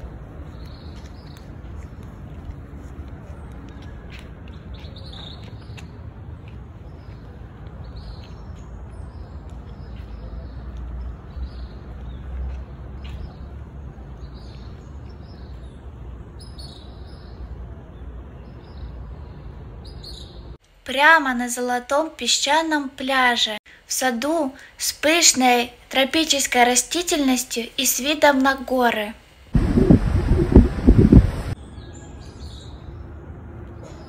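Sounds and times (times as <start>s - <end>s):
low background rumble: 29.5s - 31.6s
birds chirping: 29.6s - 32.8s.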